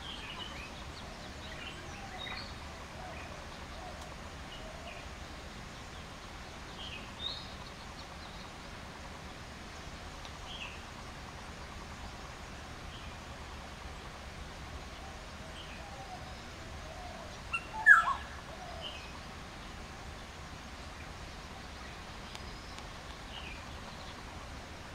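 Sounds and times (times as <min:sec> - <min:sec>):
steady background hiss: 0:00.0 - 0:24.9
birds chirping: 0:15.5 - 0:19.7.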